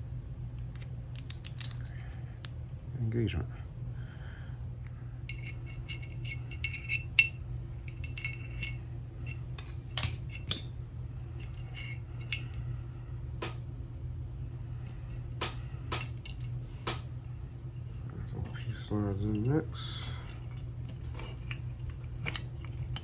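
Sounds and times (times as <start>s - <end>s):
low hum: 0.0s - 23.0s
metal parts clicking and clinking: 0.7s - 2.0s, 5.3s - 10.7s, 11.4s - 12.6s, 15.4s - 17.1s, 18.6s - 23.0s.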